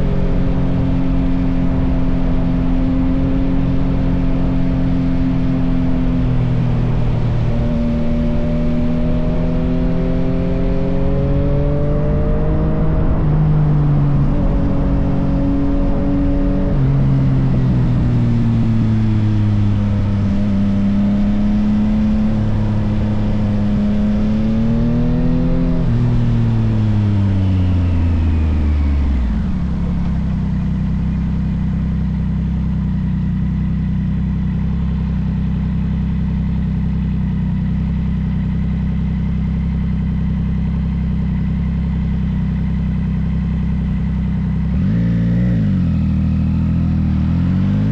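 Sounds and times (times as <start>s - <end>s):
motorcycle engine revving through gears: 0.0s - 47.9s
motorcycle engine idling: 26.2s - 44.8s.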